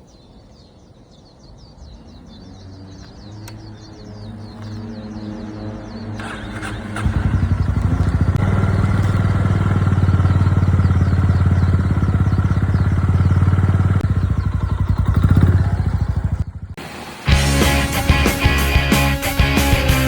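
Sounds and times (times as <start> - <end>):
motorcycle engine running: 6.2 - 20.0.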